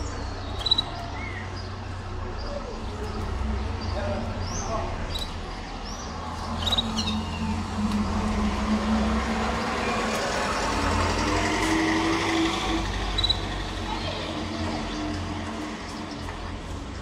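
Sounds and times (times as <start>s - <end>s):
canary chirping: 0.0s - 1.9s, 2.5s - 8.2s, 12.4s - 16.3s
engine-like droning rumble: 0.0s - 17.0s.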